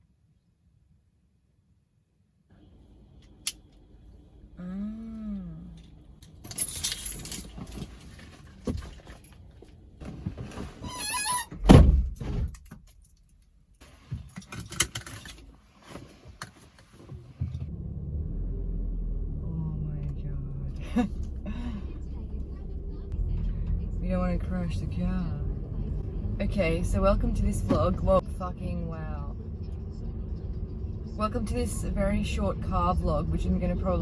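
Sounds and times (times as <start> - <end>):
car keys jangling: 6.2 - 8.2, 12.1 - 13.5.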